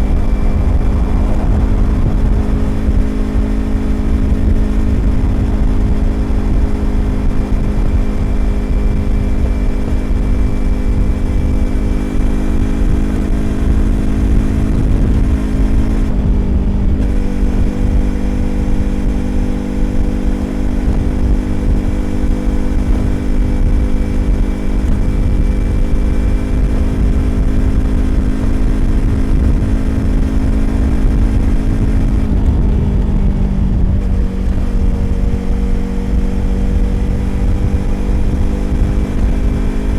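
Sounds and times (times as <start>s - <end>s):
motorcycle engine cruising: 0.0s - 39.9s
road rumble: 0.0s - 39.9s
wind: 0.0s - 39.9s.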